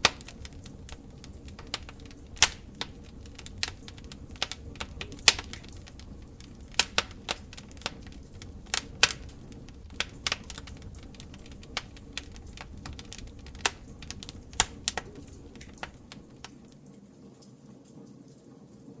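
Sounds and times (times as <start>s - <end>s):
fire crackling and popping: 0.0s - 16.8s.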